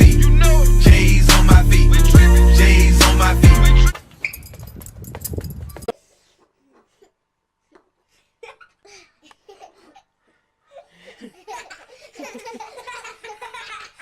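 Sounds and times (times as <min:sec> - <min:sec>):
people laughing: 0:11.1 - 0:14.0.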